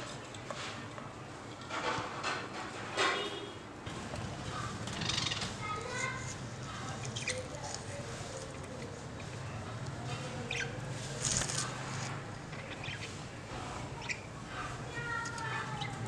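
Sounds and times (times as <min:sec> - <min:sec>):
birds flapping wings: 0:03.9 - 0:08.6, 0:10.9 - 0:12.1.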